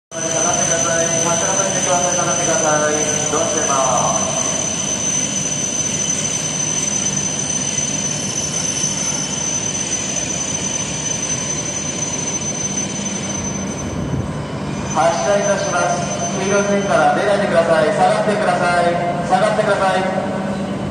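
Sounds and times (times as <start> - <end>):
high-pitched whine: 0.1 - 20.9
train equipment hum and hiss: 0.2 - 8.4.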